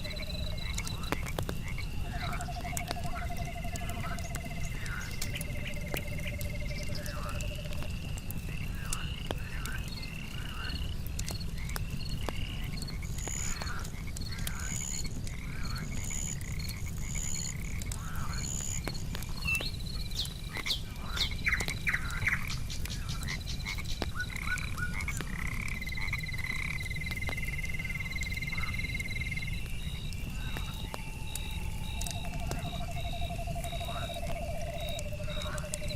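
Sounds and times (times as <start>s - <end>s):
campfire crackles: 0.0s - 35.9s
frogs croaking and trilling: 0.0s - 35.9s
high insect chirping: 25.5s - 35.9s.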